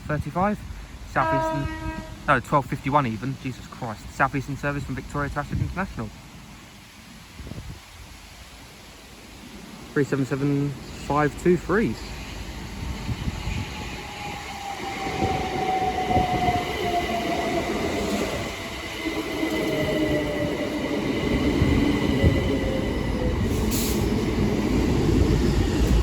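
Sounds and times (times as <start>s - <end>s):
wheels rumbling on rail: 0.0s - 26.0s
train wheel slip: 12.0s - 26.0s.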